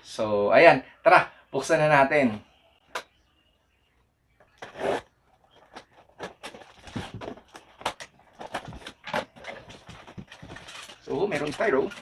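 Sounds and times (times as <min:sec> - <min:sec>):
cardboard box scraping: 0:04.6 - 0:05.1.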